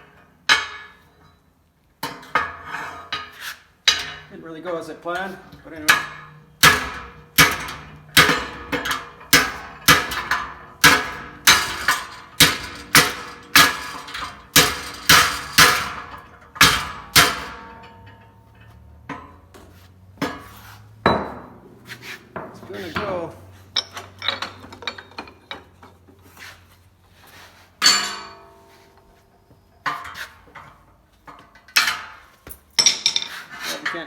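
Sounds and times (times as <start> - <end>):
hammer striking sheet metal: 5.8 - 17.9.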